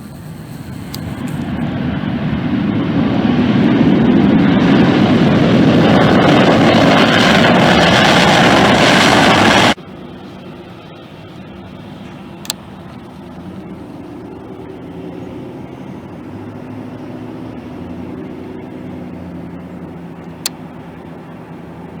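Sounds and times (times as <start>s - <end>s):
jet airliner engine rumble: 0.0s - 22.0s
sharp clicks: 12.1s - 13.4s.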